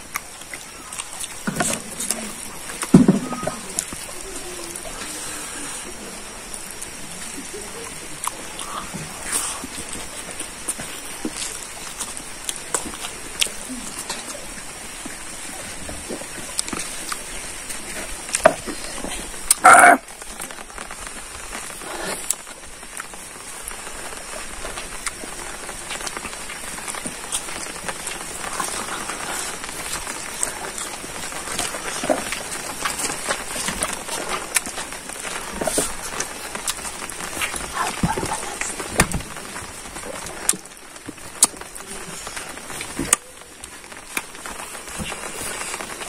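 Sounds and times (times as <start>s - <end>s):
man chewing food: 0.0s - 4.1s, 15.0s - 46.0s.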